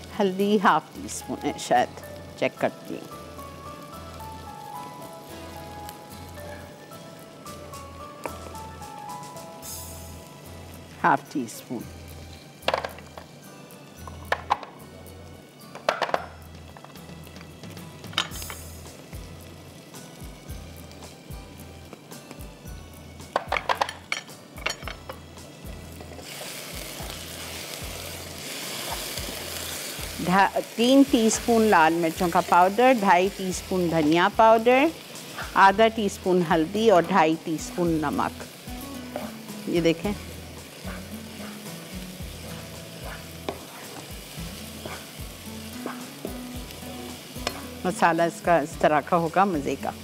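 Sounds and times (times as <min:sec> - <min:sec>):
food sizzling in hot oil: 0:00.0 - 0:50.0
utensils clinking on frying pan: 0:18.1 - 0:18.6, 0:23.3 - 0:25.2.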